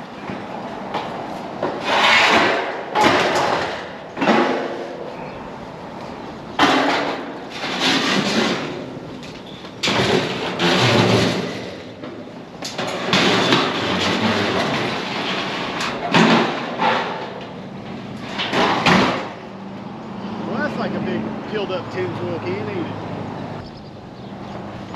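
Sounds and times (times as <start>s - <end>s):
sheet metal roofing rattling: 1.6s - 5.0s, 6.5s - 19.7s.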